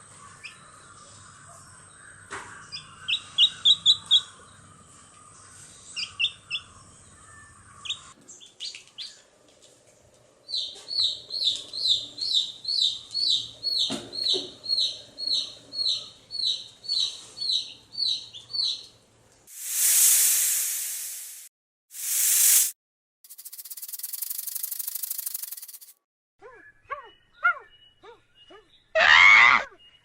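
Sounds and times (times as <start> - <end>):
bird chirping: 2.6 - 4.6, 5.4 - 9.2, 10.5 - 19.0, 23.3 - 29.0
harsh hissing bursts: 19.5 - 25.9.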